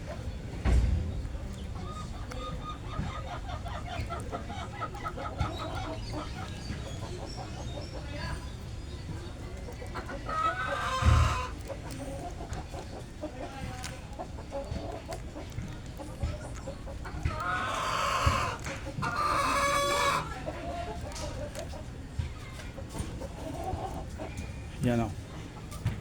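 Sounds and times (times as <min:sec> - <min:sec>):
faint knocks: 0:00.0 - 0:03.6
drawn-out bird calls: 0:00.0 - 0:21.9.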